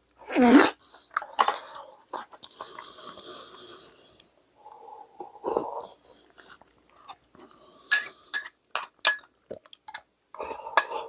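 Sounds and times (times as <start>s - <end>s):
utensils clinking against dishes: 7.9s - 9.3s, 10.8s - 11.0s.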